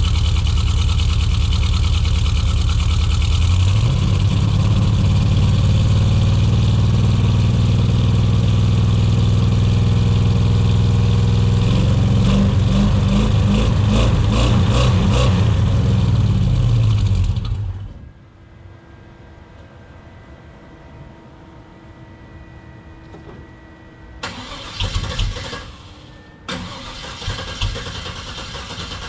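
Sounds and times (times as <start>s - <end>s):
engine idling roughly: 0.0s - 11.5s.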